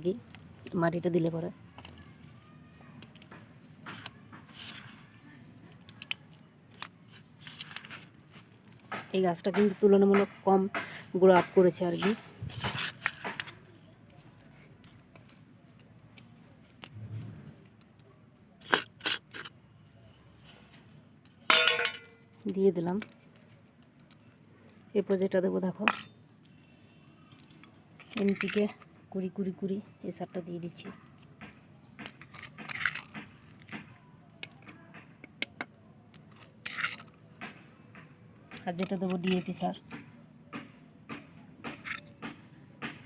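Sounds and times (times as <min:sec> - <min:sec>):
soil scraping and rustling: 0:03.8 - 0:05.2, 0:07.0 - 0:09.0, 0:12.4 - 0:13.5.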